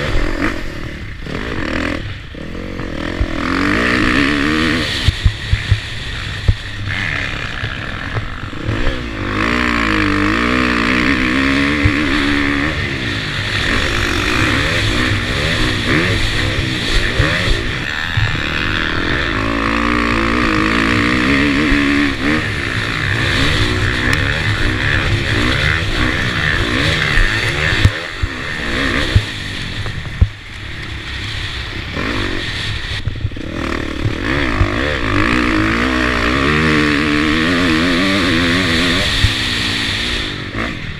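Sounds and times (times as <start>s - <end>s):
motorcycle engine revving: 0.0s - 40.9s
rush of wind and road noise: 0.0s - 40.9s.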